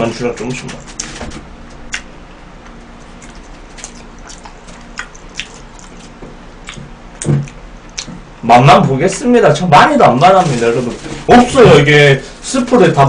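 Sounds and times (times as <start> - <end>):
wet chewing of spaghetti: 2.7 - 8.2.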